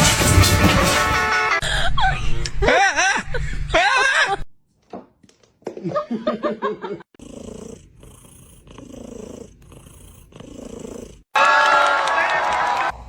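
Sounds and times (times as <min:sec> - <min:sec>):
cat purring: 0:07.2 - 0:11.3.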